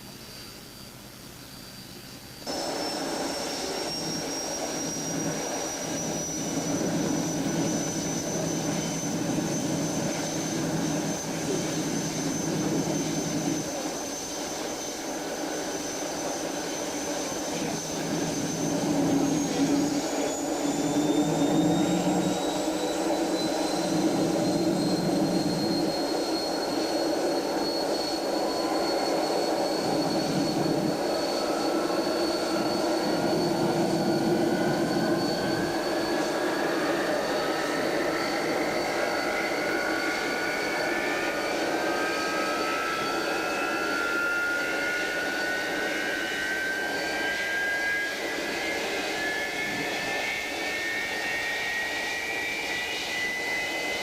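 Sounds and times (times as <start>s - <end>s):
jet engines whining and roaring: 0.0s - 54.0s
engine spooling up whine: 2.4s - 54.0s.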